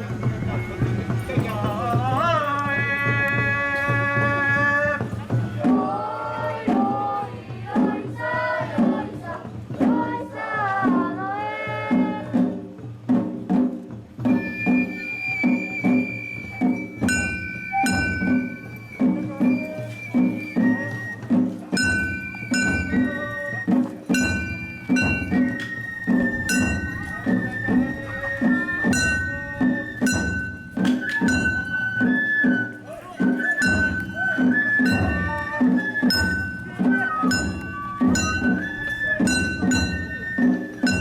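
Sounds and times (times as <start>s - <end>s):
bamboo flute long high notes: 0.0s - 5.0s, 14.2s - 41.0s
taiko drums beating: 0.0s - 41.0s
sharp metallic strikes: 24.0s - 27.2s.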